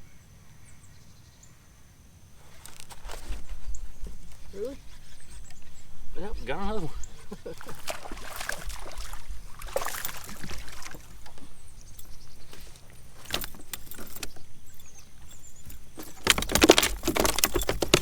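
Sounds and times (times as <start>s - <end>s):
fishing gear knocking and rustling: 2.5s - 18.0s
loud rattling and clattering: 16.0s - 18.0s.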